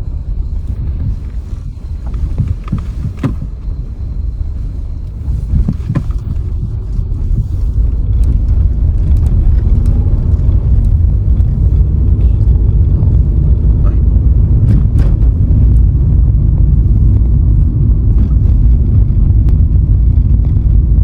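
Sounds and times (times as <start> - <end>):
engine and tyres rumbling: 0.0 - 21.0
wind on microphone: 0.0 - 21.0
knocks from road bumps: 2.0 - 3.6, 5.5 - 6.4.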